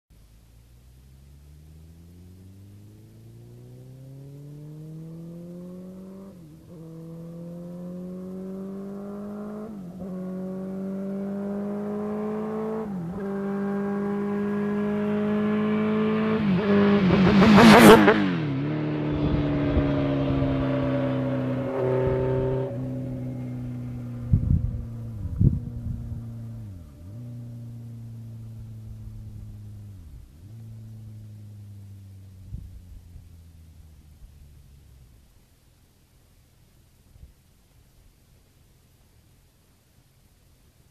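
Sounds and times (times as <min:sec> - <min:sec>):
sport bike accelerating past: 0:00.7 - 0:35.2.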